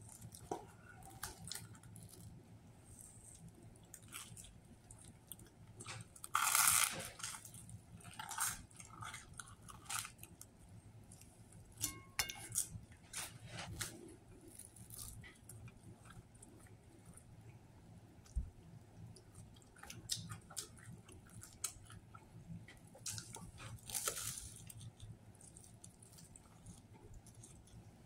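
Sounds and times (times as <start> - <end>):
toasted bread crunching: 0.0 - 17.4, 19.0 - 28.0
chewing and wet mouth sounds: 0.0 - 17.6, 18.2 - 28.0.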